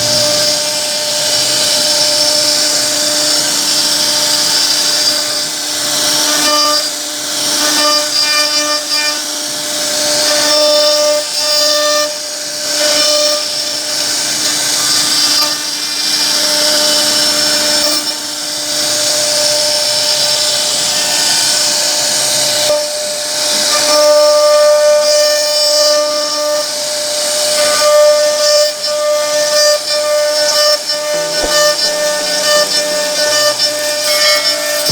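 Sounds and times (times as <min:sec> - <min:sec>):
router spindle whining: 0:00.0 - 0:34.9
bit cutting wood hiss: 0:27.6 - 0:34.9.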